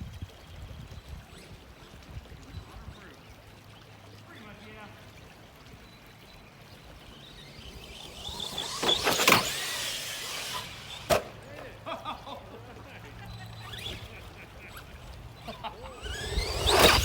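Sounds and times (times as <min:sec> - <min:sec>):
electric motor whining: 0:06.4 - 0:17.0
toy truck landing impact: 0:07.6 - 0:11.4, 0:15.9 - 0:17.0.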